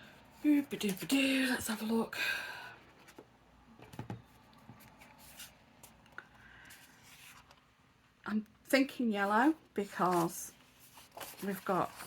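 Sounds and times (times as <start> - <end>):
paper rustling: 6.6 - 7.6, 9.8 - 12.0.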